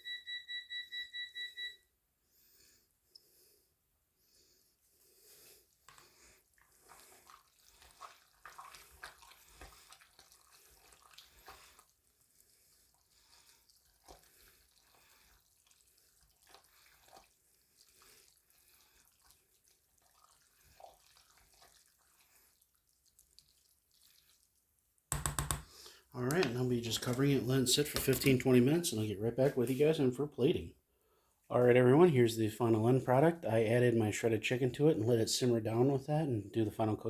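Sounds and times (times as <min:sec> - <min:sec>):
spoon stirring thick noodles: 0:05.0 - 0:28.9.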